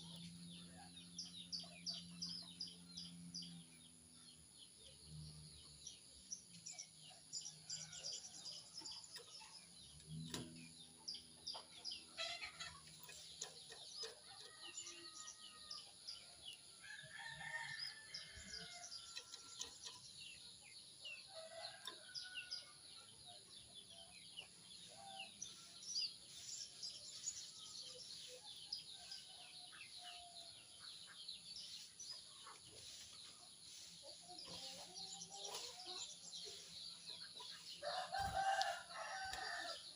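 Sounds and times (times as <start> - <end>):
small birds chirping: 0.0 - 39.9
rooster crowing: 37.8 - 39.8.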